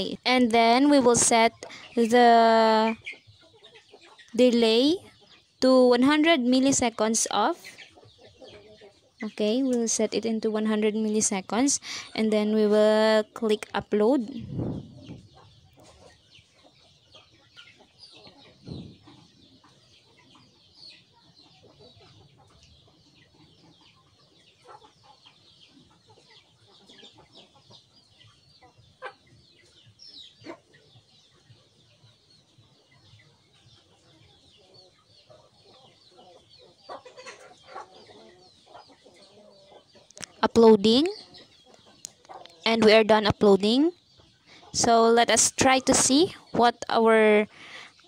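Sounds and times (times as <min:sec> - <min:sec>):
faint bird chirps: 0:13.5 - 0:48.0.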